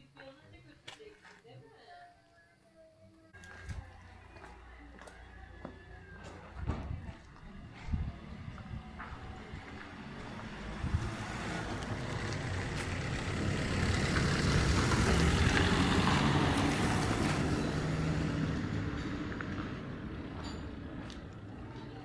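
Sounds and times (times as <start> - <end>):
vehicle driving past: 5.2 - 22.0.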